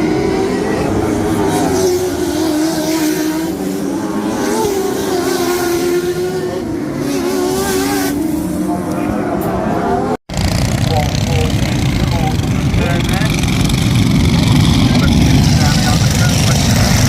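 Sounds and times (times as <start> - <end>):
kart engines racing: 0.0 - 17.0.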